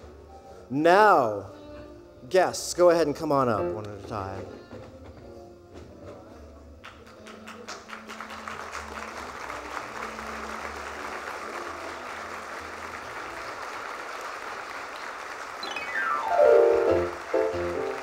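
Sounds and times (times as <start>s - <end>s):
background music: 0.0s - 14.0s, 15.6s - 18.0s
audience applause: 6.9s - 18.0s
falling musical tone: 15.6s - 18.0s.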